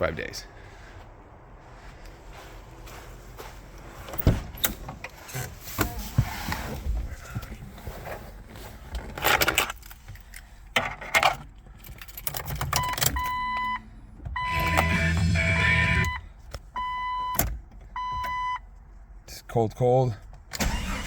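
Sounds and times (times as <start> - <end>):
keys jangling and clicking: 11.1 - 13.3
starter cranking engine: 20.6 - 21.0.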